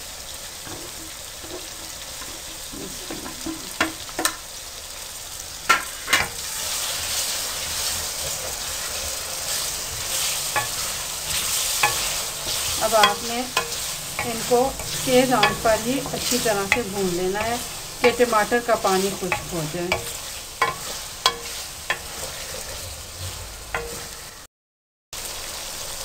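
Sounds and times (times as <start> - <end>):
vegetables sizzling in oil: 0.0 - 24.5, 25.2 - 26.0
spatula knocking against pan: 10.5 - 22.4, 23.8 - 24.1.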